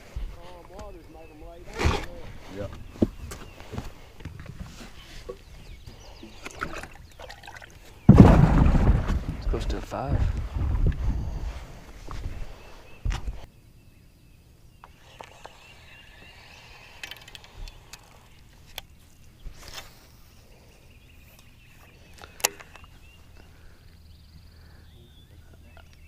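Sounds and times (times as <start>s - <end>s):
loud crack: 8.1s - 9.6s
faint high chirping: 12.2s - 26.0s.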